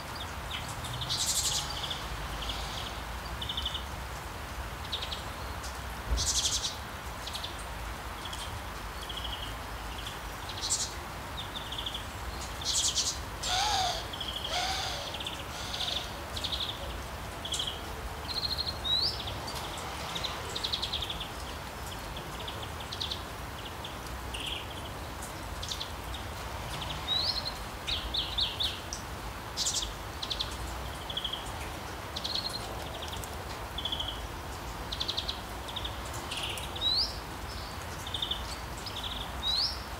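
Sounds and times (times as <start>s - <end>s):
steady background hiss: 0.0s - 39.9s
birds chirping: 9.0s - 19.6s.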